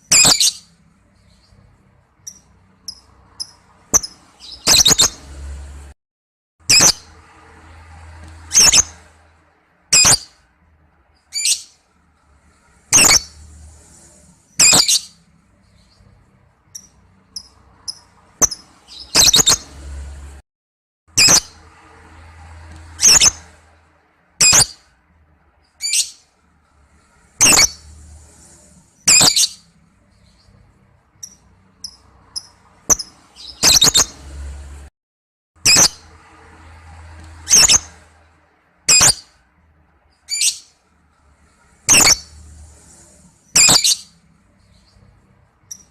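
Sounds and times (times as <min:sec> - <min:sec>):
lovebird chirping: 0:00.0 - 0:05.4, 0:06.7 - 0:07.1, 0:08.4 - 0:09.0, 0:09.9 - 0:10.4, 0:12.9 - 0:19.8, 0:22.9 - 0:23.4, 0:24.4 - 0:24.8, 0:27.4 - 0:28.4, 0:29.0 - 0:34.2, 0:38.9 - 0:39.2, 0:41.9 - 0:42.6, 0:43.4 - 0:45.9.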